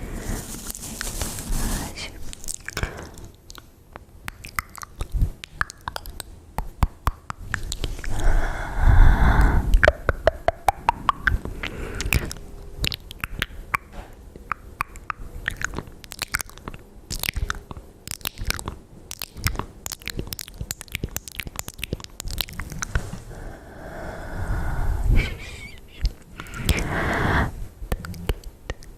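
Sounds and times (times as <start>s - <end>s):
tongue pops: 2.3s - 8.2s, 9.4s - 23.0s
wet mouth clicks and smacks: 2.3s - 8.3s, 9.4s - 23.0s, 26.0s - 26.9s, 27.9s - 28.9s.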